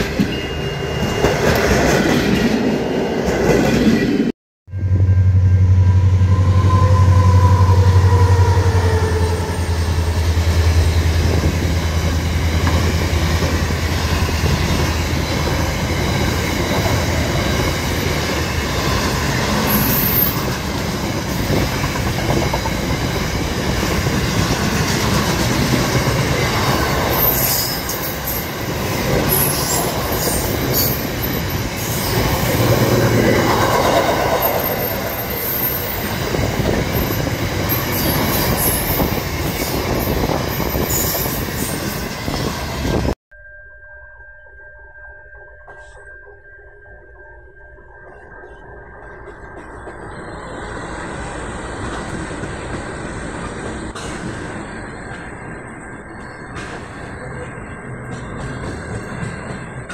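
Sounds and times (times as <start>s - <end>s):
diesel locomotive droning: 0.0s - 43.2s, 47.6s - 59.9s
high wheel squeals: 4.8s - 12.9s, 13.5s - 21.7s, 26.4s - 43.0s
wagon wheels rumbling on rails: 10.1s - 43.2s.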